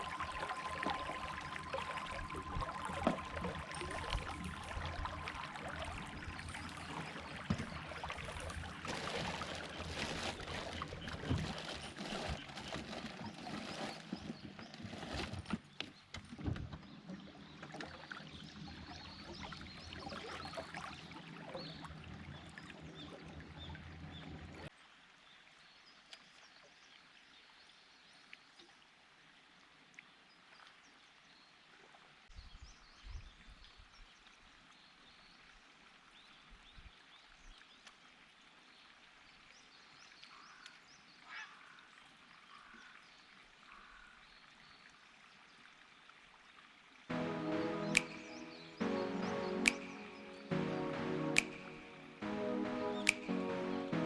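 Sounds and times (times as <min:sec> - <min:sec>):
low hum: 0:00.0 - 0:11.5
water splashing against boat: 0:00.0 - 0:24.7
faint outdoor background: 0:00.0 - 0:54.0.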